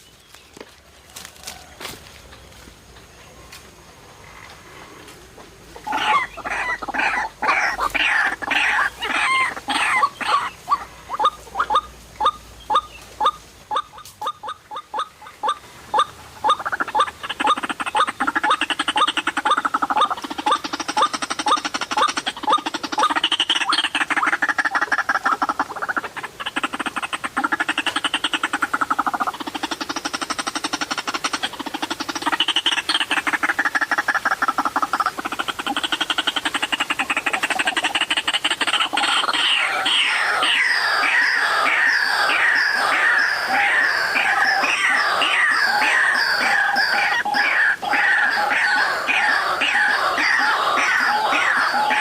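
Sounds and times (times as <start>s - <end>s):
bird croaking chatter: 4.2s - 52.0s
loud wavering bird call: 38.6s - 52.0s.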